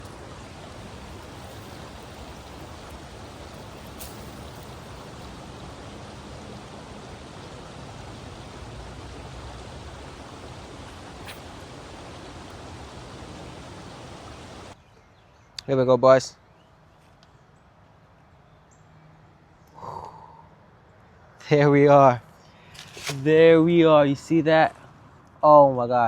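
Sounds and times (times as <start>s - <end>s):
steady rushing noise: 0.0s - 14.8s.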